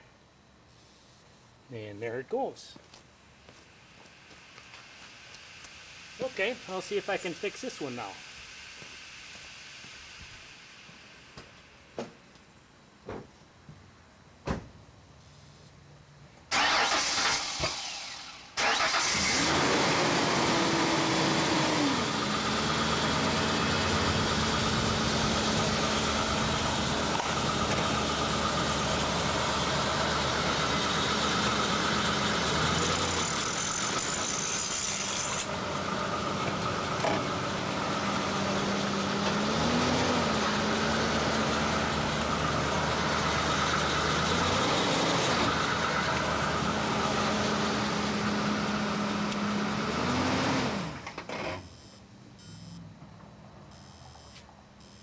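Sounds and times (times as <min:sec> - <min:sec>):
motor-driven machine humming: 0:22.2 - 0:39.4.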